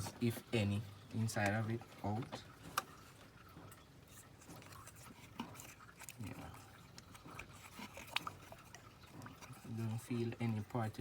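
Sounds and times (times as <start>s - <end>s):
faint clicks and scraping: 1.4s - 10.8s.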